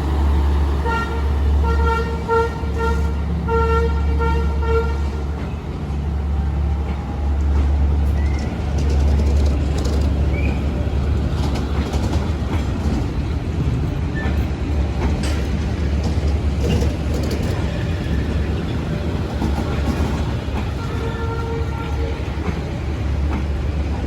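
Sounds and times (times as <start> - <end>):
train rumbling past: 0.0 - 24.0
wheels clacking over rail joints: 0.0 - 24.0.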